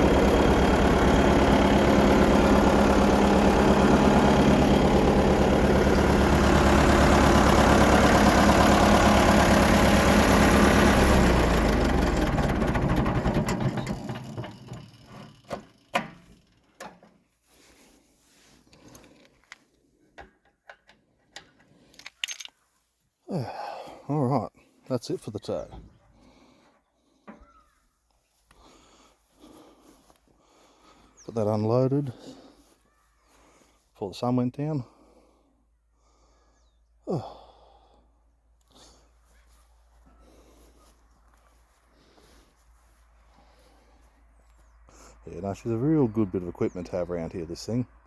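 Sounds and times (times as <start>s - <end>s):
diesel engine running: 0.0s - 16.7s, 38.7s - 48.0s.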